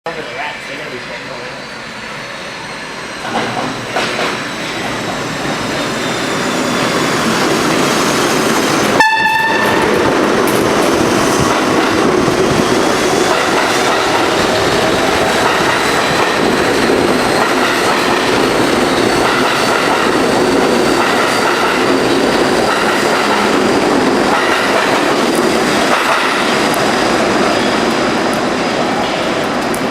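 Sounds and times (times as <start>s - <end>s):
subway train clattering past: 0.1s - 29.9s
horn-like tone: 9.0s - 9.9s.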